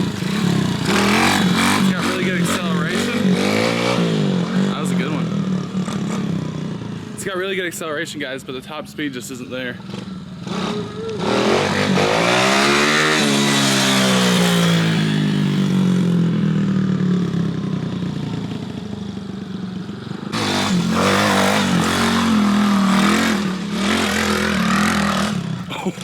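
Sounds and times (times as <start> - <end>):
pit bike engine revving: 0.0 - 7.3, 9.8 - 17.5, 20.2 - 26.0.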